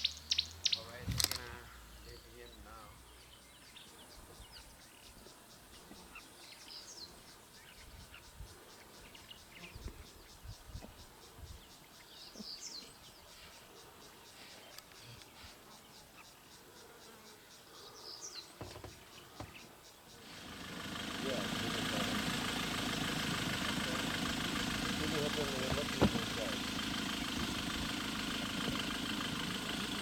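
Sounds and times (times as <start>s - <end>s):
short high chirping call: 0.0s - 1.7s
insects stridulating: 0.0s - 30.0s
soft low bumps: 24.6s - 28.9s.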